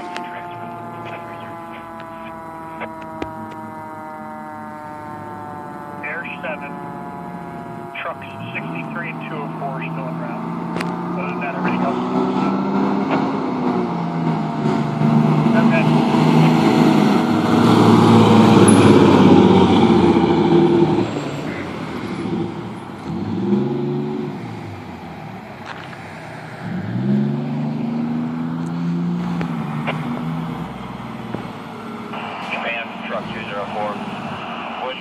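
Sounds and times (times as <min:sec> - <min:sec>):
fire truck diesel engine revving: 0:00.0 - 0:35.0.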